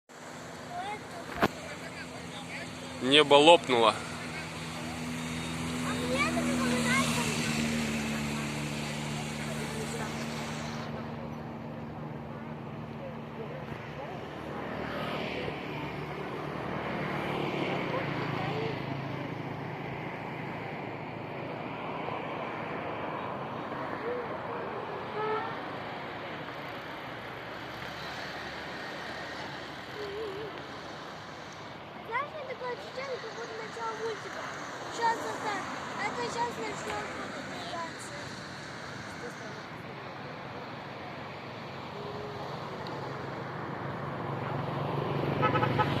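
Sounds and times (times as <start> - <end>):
road traffic noise: 0.0 - 46.0
vehicle engine hum: 0.1 - 46.0.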